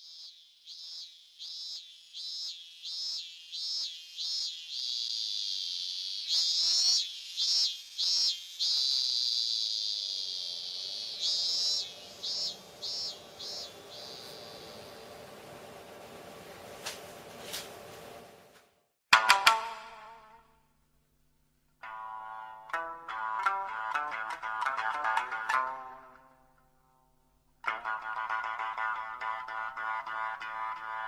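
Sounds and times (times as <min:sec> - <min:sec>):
insects chirping and buzzing: 0:00.0 - 0:16.0.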